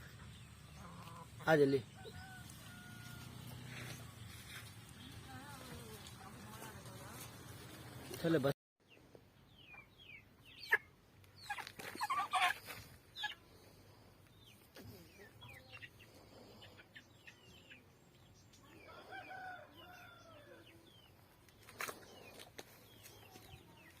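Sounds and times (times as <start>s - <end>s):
chickens clucking and peeping: 0.0s - 5.2s, 8.9s - 24.0s
rooster crowing: 2.0s - 3.7s, 18.8s - 20.6s.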